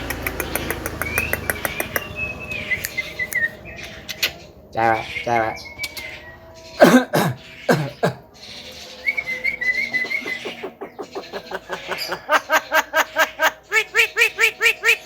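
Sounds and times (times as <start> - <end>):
bird calling: 0.0 - 15.0
bird whistle: 9.0 - 10.6.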